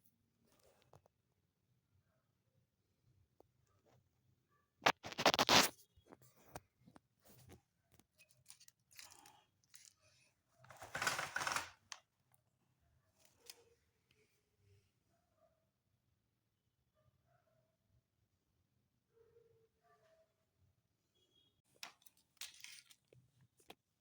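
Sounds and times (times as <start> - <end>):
scratching and scraping: 4.8 - 6.6.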